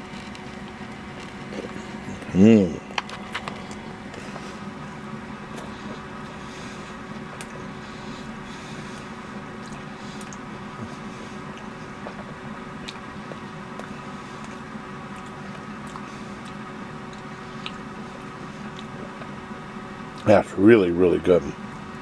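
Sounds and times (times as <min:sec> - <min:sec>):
person chewing: 0:00.0 - 0:19.3
steady room hum: 0:00.0 - 0:22.0
soft mouth clicks: 0:09.7 - 0:10.4.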